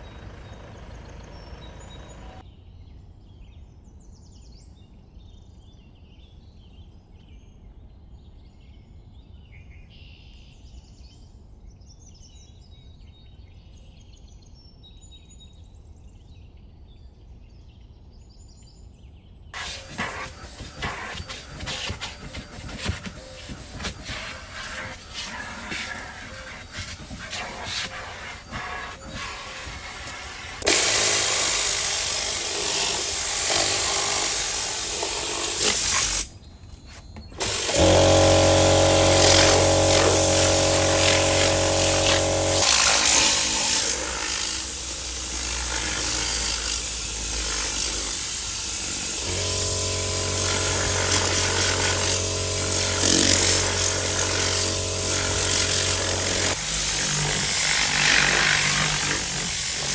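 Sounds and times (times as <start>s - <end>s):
electric motor humming: 19.6s - 36.3s, 37.2s - 59.9s.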